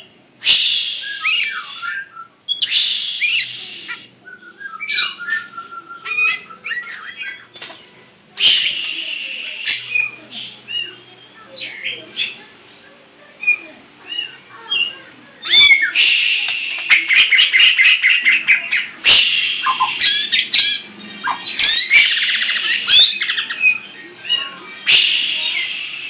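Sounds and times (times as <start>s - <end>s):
songbird singing trills: 1.0s - 12.7s, 13.4s - 24.6s.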